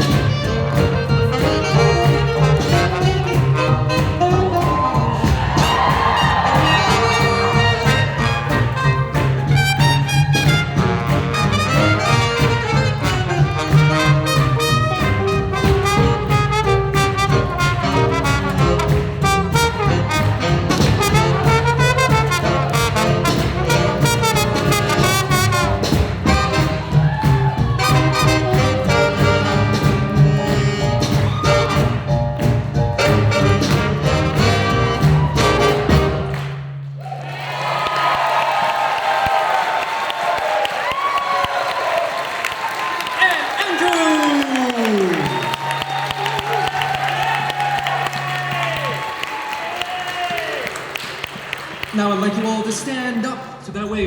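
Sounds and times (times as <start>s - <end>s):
swing jazz band playing: 0.0s - 36.9s.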